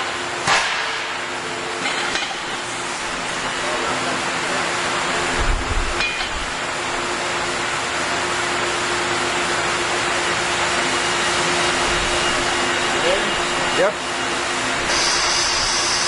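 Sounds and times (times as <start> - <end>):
machinery running with hum: 0.0 - 16.0.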